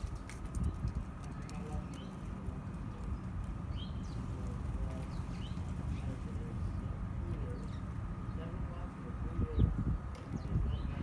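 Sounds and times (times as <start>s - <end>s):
bird chirping: 3.0s - 6.8s.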